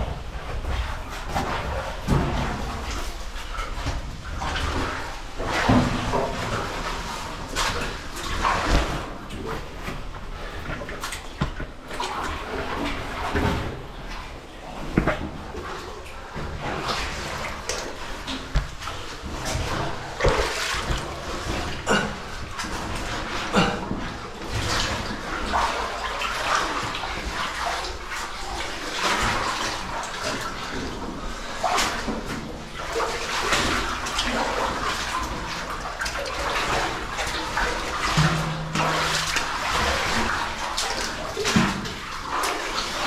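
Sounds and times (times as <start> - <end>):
rush of moving water: 0.0 - 43.0
water splashing and sloshing: 0.0 - 43.0.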